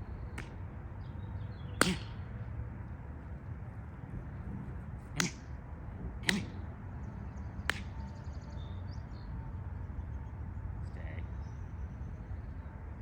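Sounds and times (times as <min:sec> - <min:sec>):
sharp cracks: 0:01.8 - 0:02.2.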